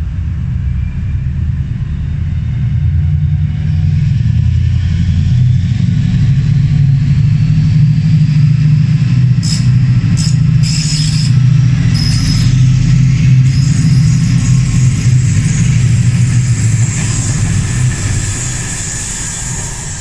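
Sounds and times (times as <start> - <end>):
diesel locomotive engine throbbing: 0.0 - 20.0
high-pitched squeals with hiss: 9.4 - 20.0.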